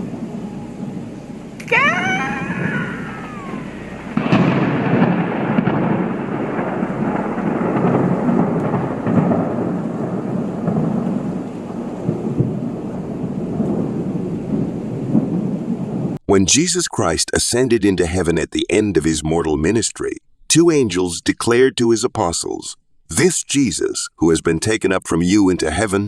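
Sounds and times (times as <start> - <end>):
falling whining tone: 1.6 - 4.7
loud low rumble: 2.0 - 9.4.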